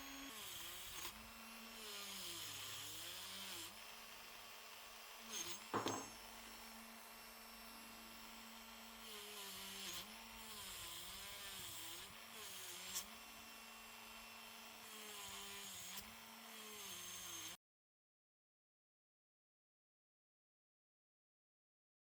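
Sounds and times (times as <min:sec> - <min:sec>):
small electric power tool running: 0:00.0 - 0:17.6.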